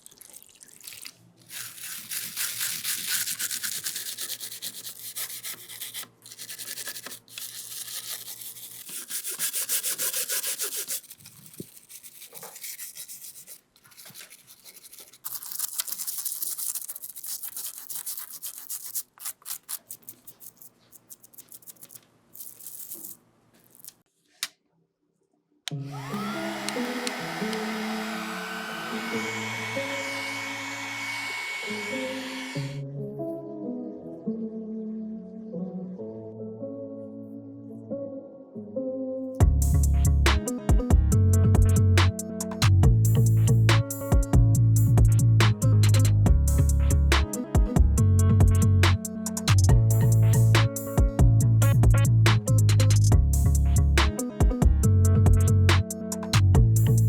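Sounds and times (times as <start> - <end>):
brush scrubbing hard surface: 1.5 - 23.2.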